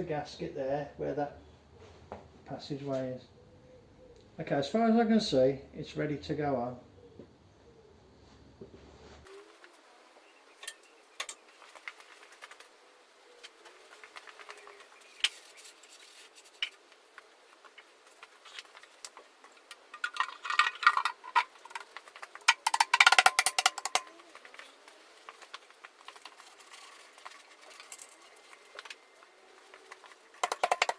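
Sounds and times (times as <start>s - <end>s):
metal parts clicking and clinking: 19.6s - 24.7s, 25.3s - 29.0s, 29.7s - 30.9s.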